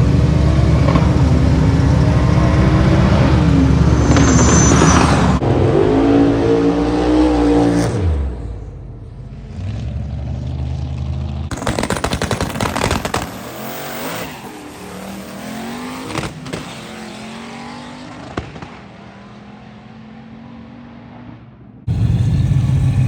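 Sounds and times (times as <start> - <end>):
race car engine revving: 0.0 - 23.0
rapid engine pops: 11.5 - 13.7, 18.2 - 18.9.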